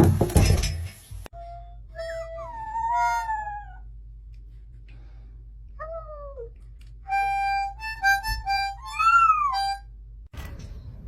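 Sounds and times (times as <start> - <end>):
harmonica playing held notes: 1.4 - 3.2, 7.1 - 9.8
animal call like a meow: 2.4 - 3.8, 8.9 - 9.6.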